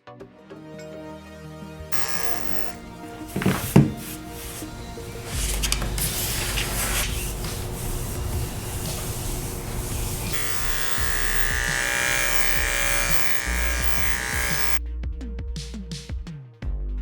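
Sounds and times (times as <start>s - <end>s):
electric clippers buzzing: 1.9s - 14.8s.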